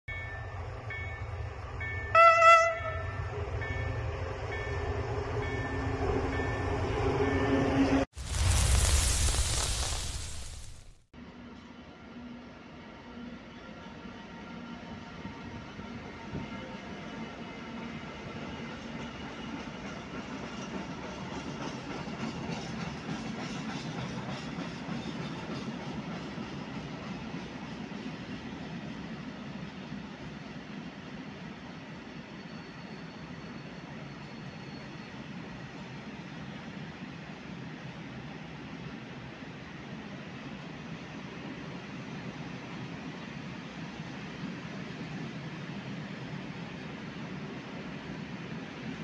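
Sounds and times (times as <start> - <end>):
locomotive horn blast: 2.1 - 3.3
loud static hiss: 8.2 - 11.0
train wheels on rails: 14.6 - 49.0
train rumble: 18.2 - 31.6.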